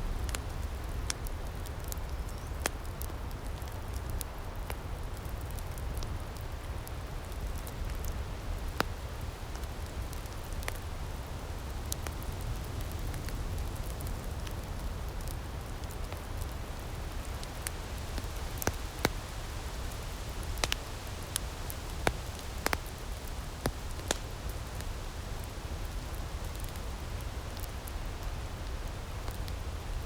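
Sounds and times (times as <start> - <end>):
wood fire popping: 0.0 - 30.0
fire hissing: 6.6 - 30.0.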